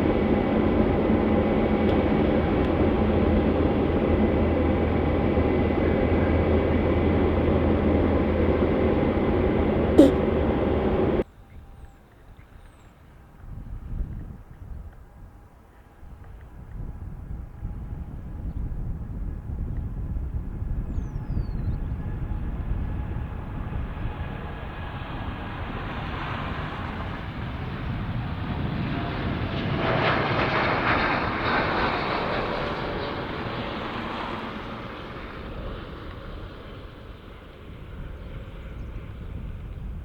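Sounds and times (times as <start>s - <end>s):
jet airliner engines passing: 0.0s - 11.2s, 21.9s - 40.0s.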